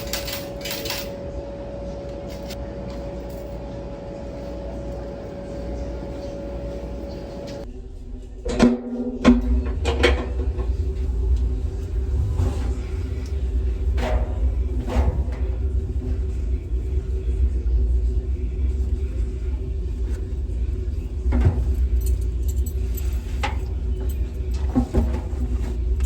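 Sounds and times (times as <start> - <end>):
car cabin low rumble: 10.2 - 21.9.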